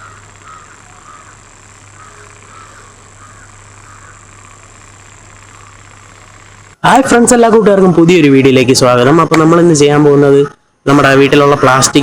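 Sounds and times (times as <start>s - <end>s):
short animal calls: 0.0s - 4.8s
steady low hum: 0.0s - 12.0s.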